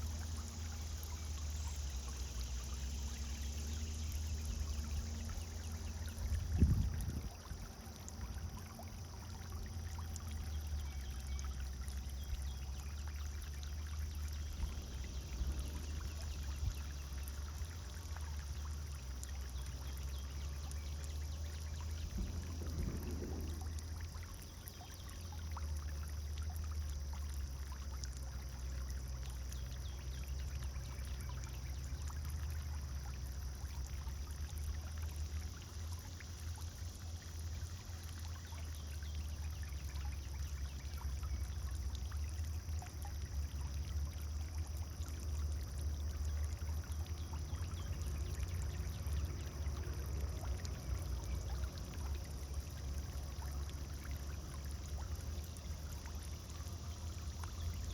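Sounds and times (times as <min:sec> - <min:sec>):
fountain water splashing: 0:00.0 - 0:57.9
low rumble: 0:22.0 - 0:24.5.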